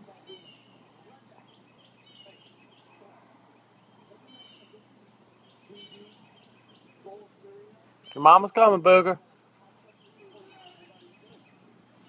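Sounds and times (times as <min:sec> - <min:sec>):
high bird chirps: 0:00.3 - 0:07.1.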